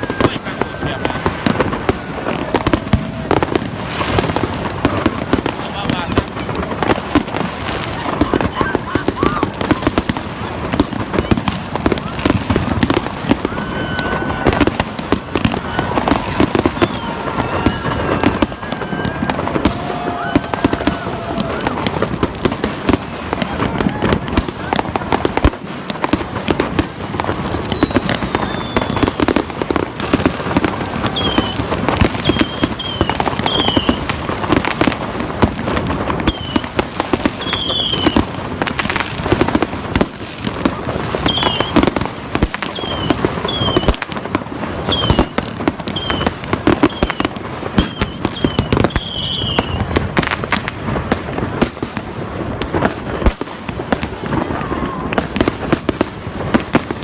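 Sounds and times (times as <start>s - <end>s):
fireworks bangs and crackling: 0.0s - 57.0s
firework whistles dropping in pitch: 16.0s - 19.4s, 27.4s - 29.4s, 31.2s - 31.6s, 32.2s - 34.0s, 36.2s - 36.6s, 37.4s - 38.2s, 41.2s - 41.8s, 42.7s - 44.0s, 44.9s - 49.9s.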